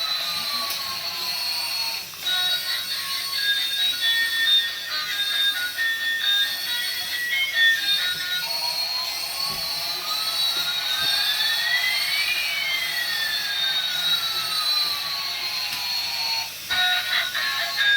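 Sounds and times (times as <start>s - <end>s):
electronic jet-like whine: 0.1s - 17.9s.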